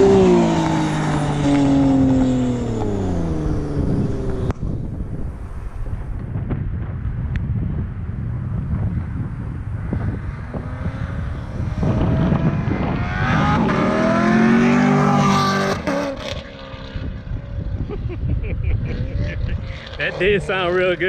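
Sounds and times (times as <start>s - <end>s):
sports car accelerating past: 0.0s - 4.9s, 9.7s - 17.8s.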